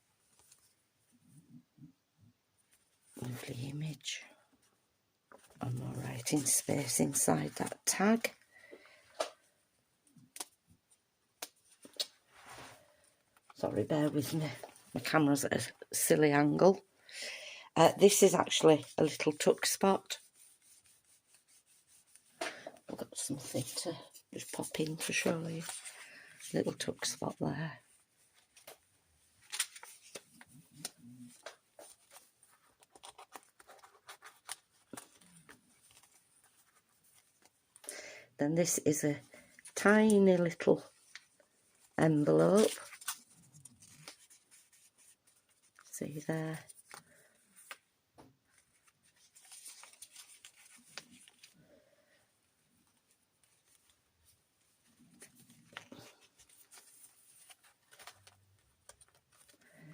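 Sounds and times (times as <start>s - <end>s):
paper rustling and scraping: 29.4s - 37.5s, 42.1s - 47.8s, 48.5s - 51.7s, 54.9s - 59.9s.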